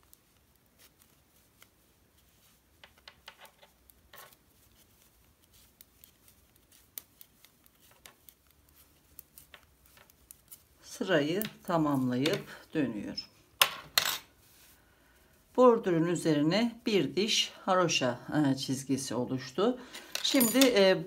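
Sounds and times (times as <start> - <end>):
knitting needles clicking: 2.8 - 12.6.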